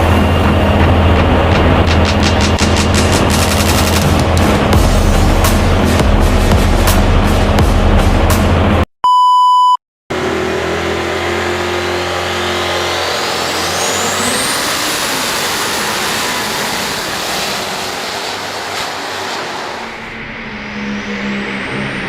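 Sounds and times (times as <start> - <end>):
engine running hard: 0.0 - 8.8, 10.1 - 22.0
short electronic beep: 9.0 - 9.8
high whine rising in pitch: 10.1 - 22.0.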